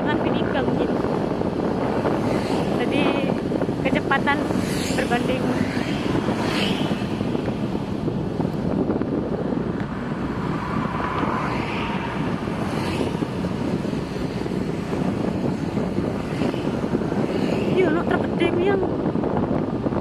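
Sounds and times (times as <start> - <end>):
vehicle road noise: 0.0 - 20.0
wind on microphone: 0.0 - 20.0.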